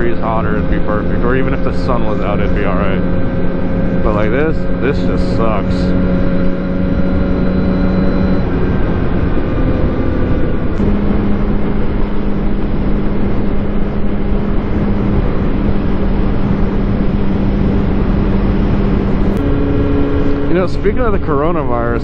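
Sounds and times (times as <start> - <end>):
heavy wind noise: 0.0 - 22.0
motorcycle engine cruising: 0.0 - 22.0.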